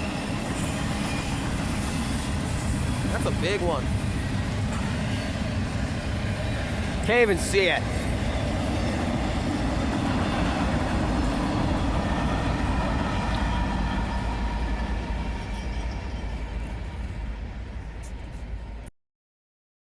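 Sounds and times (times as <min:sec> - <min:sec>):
freight train rumbling past: 0:00.0 - 0:18.9.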